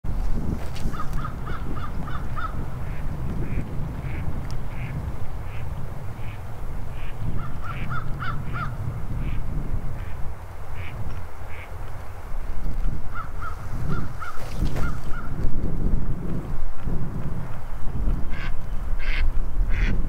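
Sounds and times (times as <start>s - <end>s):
steady low rumble: 0.1s - 19.8s
birds calling: 0.9s - 9.4s, 13.1s - 15.4s.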